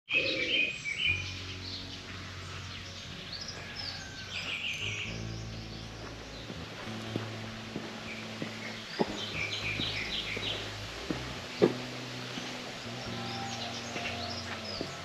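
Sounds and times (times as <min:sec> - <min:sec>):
birds chirping: 0:00.1 - 0:15.0
steady low hum: 0:04.9 - 0:15.0.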